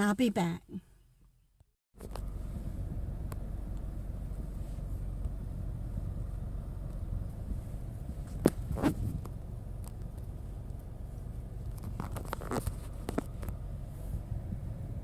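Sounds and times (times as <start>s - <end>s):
low vehicle rumble: 0.9s - 15.0s
handling clicks and rustling: 8.2s - 13.6s.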